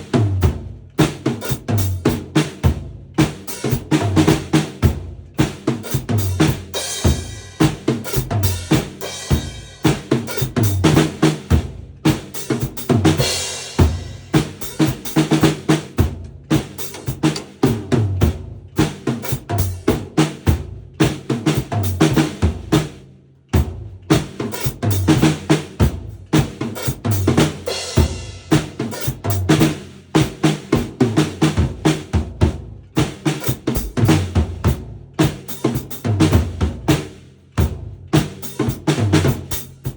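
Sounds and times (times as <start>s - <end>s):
drum kit playing: 0.0s - 39.9s
cymbal crashes: 6.8s - 10.8s.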